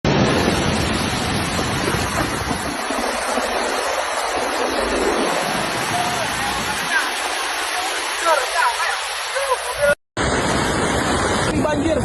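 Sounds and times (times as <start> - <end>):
floodwater rushing: 0.1 - 12.0.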